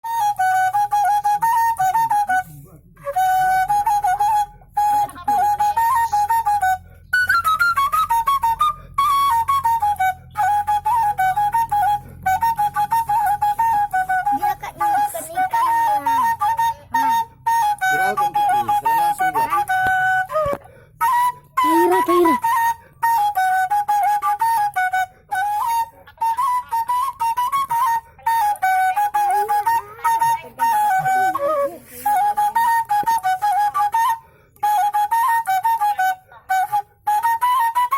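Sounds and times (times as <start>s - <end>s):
bamboo flute melody: 0.0s - 37.9s.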